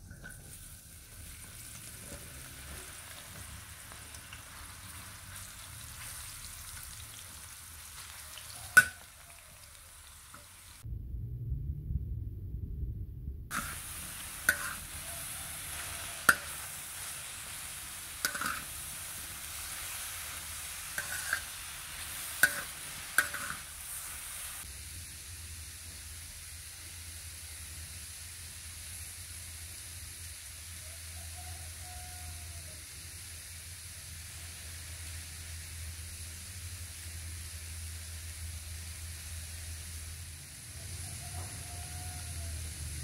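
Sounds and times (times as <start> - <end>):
mushrooms sizzling on a griddle: 0.2 - 10.8, 13.5 - 43.0
metal spatula scraping a pan: 13.5 - 24.2
steady hiss: 13.5 - 43.0.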